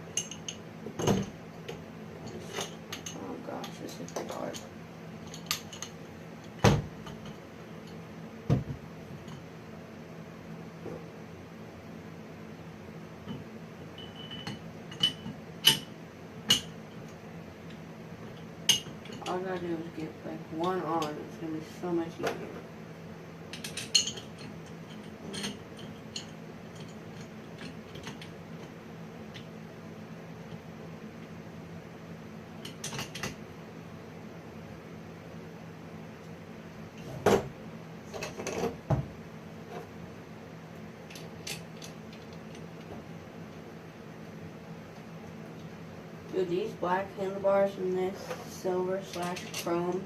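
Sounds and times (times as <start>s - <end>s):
steady low hum: 0.0s - 50.0s
sharp knocks of parts and tools: 8.5s - 9.4s
metallic clicks and clinks: 49.1s - 50.0s.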